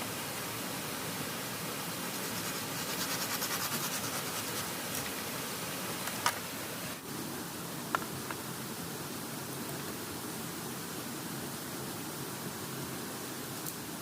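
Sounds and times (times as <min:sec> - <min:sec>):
scratching strokes: 0:02.0 - 0:05.2.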